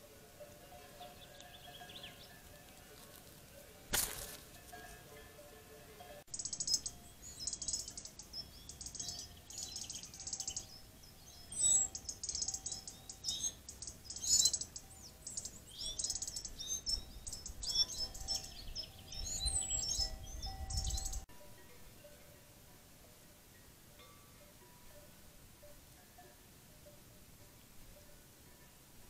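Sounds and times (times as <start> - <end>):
small birds singing: 0.0 - 21.3.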